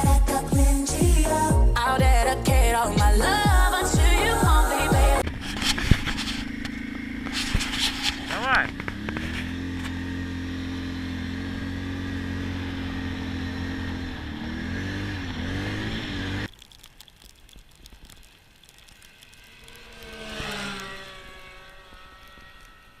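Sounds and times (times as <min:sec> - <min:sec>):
vehicle engine running: 0:00.0 - 0:16.5, 0:18.3 - 0:23.0
engine passing by: 0:04.6 - 0:16.5, 0:18.7 - 0:23.0.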